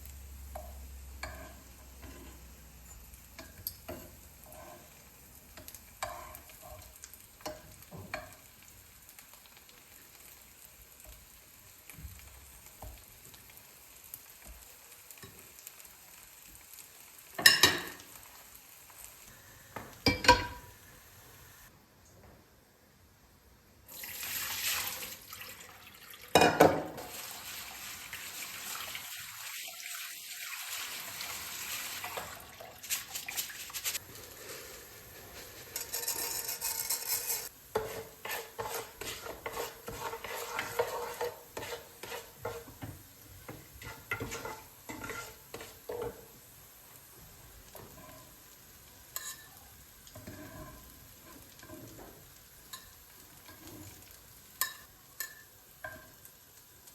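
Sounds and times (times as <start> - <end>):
food sizzling in a frying pan: 0.0 - 21.7, 23.9 - 56.9
utensil scraping a pan: 1.2 - 5.0, 32.8 - 46.2.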